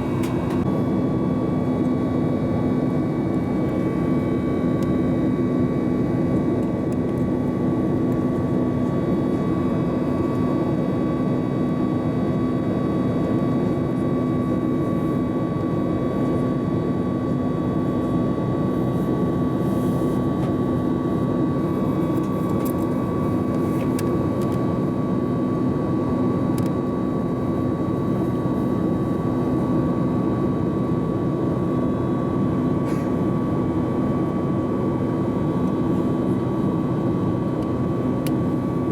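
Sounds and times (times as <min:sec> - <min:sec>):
airplane cabin drone: 0:00.0 - 0:38.9
jet engine whine: 0:00.0 - 0:38.9.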